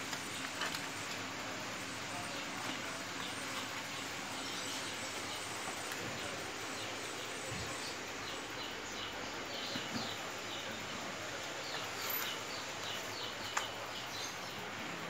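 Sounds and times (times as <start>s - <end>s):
steady background hiss: 0.0s - 15.0s
small bird chirping: 11.6s - 14.6s.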